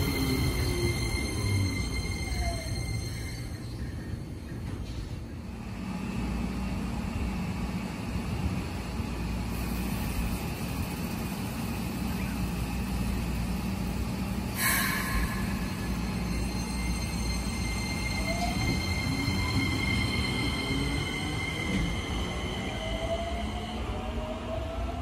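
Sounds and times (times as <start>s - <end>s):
electric train rumble and hum: 0.0s - 25.0s
short burst of hiss: 14.6s - 15.9s.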